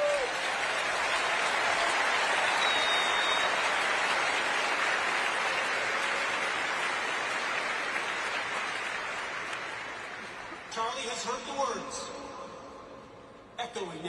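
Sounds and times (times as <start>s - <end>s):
crowd applauding: 0.0s - 10.7s.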